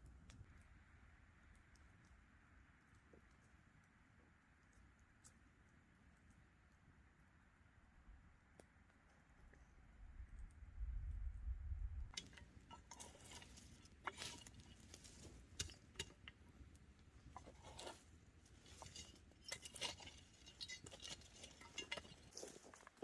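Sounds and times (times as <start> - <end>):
small objects clicking and clinking: 12.2 - 23.0.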